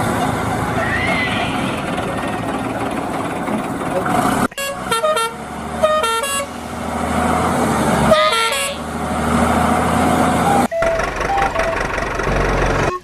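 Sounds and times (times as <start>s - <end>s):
engine hum: 0.0s - 13.0s
cartoon horn toots: 4.6s - 6.5s, 8.1s - 8.9s.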